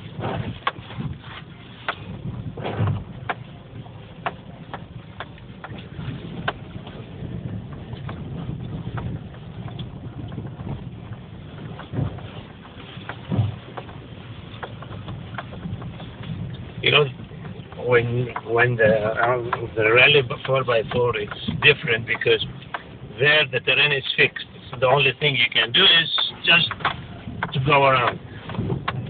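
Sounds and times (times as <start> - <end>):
car engine and tyres rumbling: 0.0 - 29.0
short knocks and rattles: 4.2 - 23.0.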